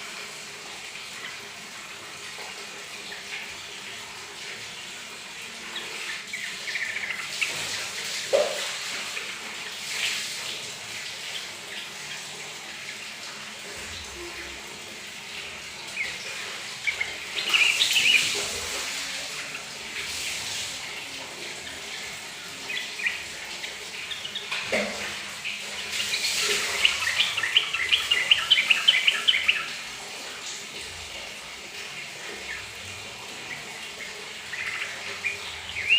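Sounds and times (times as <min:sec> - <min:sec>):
running tap trickling: 0:00.0 - 0:35.9
bird chirping and chattering: 0:05.7 - 0:10.2, 0:15.6 - 0:20.6, 0:21.6 - 0:29.8, 0:32.0 - 0:35.9.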